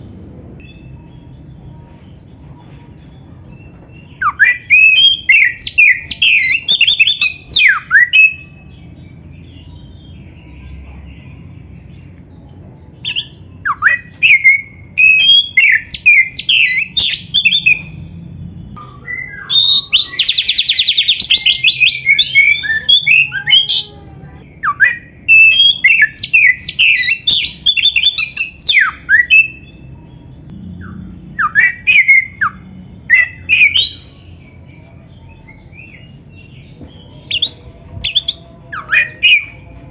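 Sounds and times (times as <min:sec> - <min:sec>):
songbird whistling and squawking: 0:03.6 - 0:08.7, 0:13.0 - 0:18.0, 0:18.8 - 0:29.8, 0:30.7 - 0:34.9, 0:35.5 - 0:39.9.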